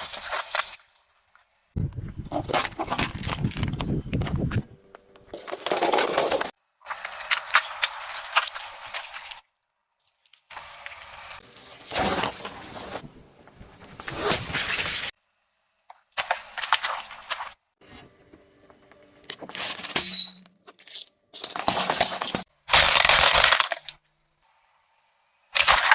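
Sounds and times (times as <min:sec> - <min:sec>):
objects cracking under tyre: 0:02.3 - 0:04.6, 0:22.7 - 0:24.0.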